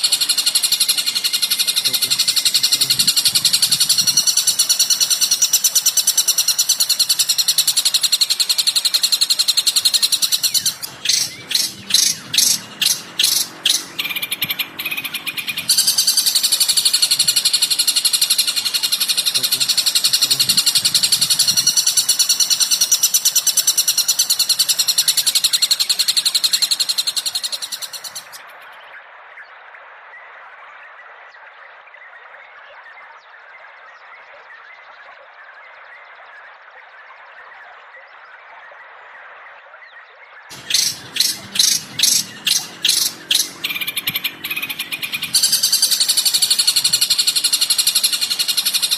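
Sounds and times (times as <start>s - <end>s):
songbird chattering: 0.0s - 28.4s, 40.5s - 48.9s
sharp bird calls: 0.0s - 28.6s, 40.5s - 48.9s.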